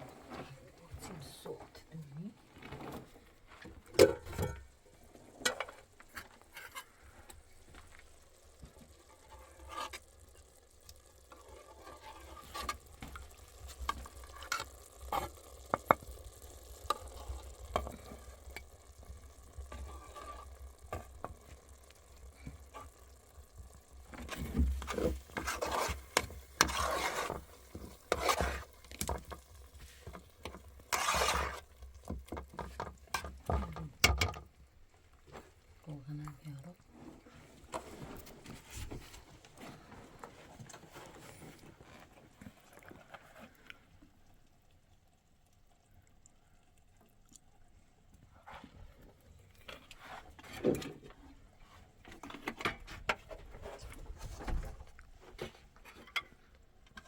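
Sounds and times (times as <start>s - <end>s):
scraping or rustling noise: 11.3s - 16.0s, 24.1s - 33.7s, 36.9s - 43.6s, 48.4s - 56.4s.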